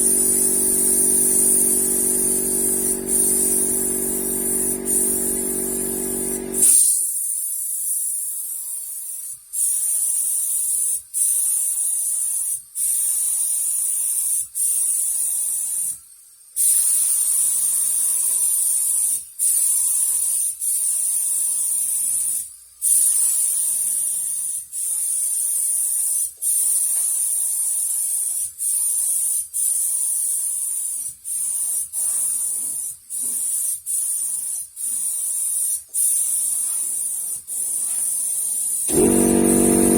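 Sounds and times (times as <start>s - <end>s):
paint spray hissing: 0.0s - 7.0s, 27.6s - 39.9s.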